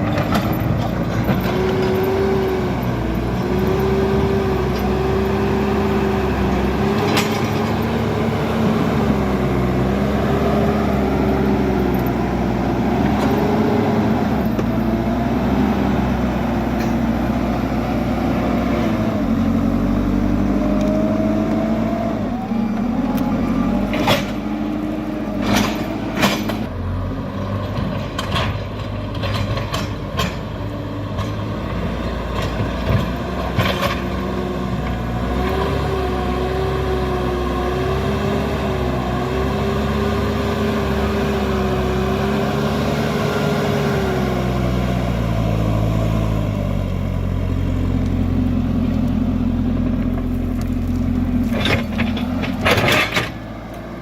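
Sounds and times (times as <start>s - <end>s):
diesel engine revving: 0.0s - 54.0s.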